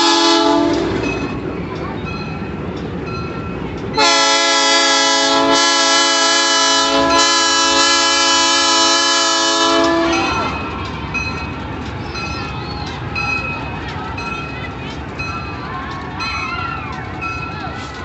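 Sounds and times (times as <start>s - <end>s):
train air horn blast: 0.0s - 1.0s, 4.0s - 10.5s
train running rumble: 0.0s - 18.0s.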